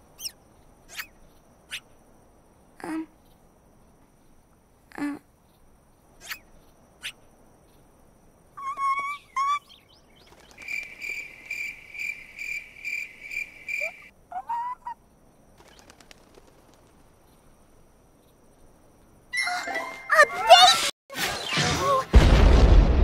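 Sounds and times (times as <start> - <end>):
cartoon birds chirping: 6.2 - 7.2, 8.6 - 11.3, 13.3 - 15.0.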